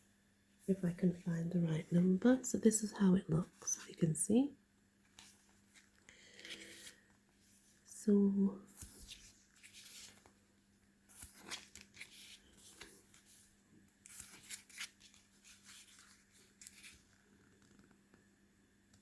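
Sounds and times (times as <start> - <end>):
paper pages rustling: 5.0 - 7.8, 8.7 - 10.4, 11.1 - 17.8.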